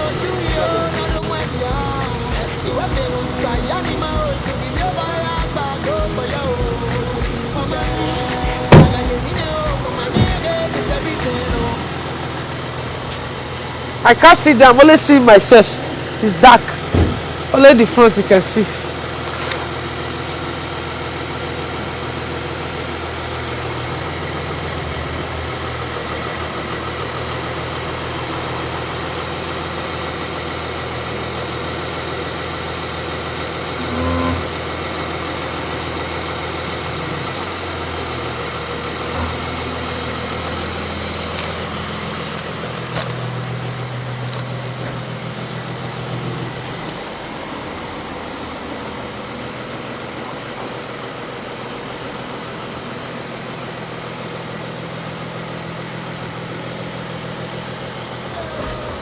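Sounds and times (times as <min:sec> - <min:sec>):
car engine and road hum: 0:00.0 - 0:59.0
brief knock: 0:08.7 - 0:09.2, 0:16.9 - 0:17.3.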